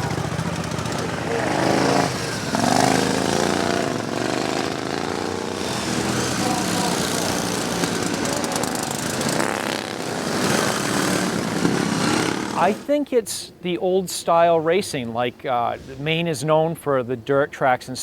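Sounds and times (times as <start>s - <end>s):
racing lawn mower engines revving: 0.0s - 12.9s.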